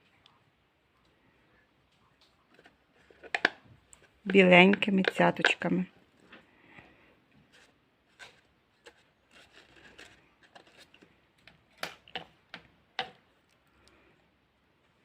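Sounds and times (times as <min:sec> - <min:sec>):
faint paper rustling: 0:00.9 - 0:12.3.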